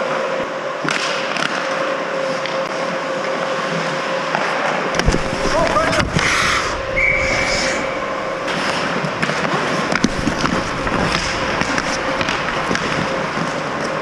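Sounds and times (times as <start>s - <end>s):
hockey sticks and puck clacking: 0.8s - 2.8s, 4.3s - 6.5s, 8.5s - 14.0s
skates scraping ice: 0.9s - 14.0s
steady high tone: 5.5s - 9.2s.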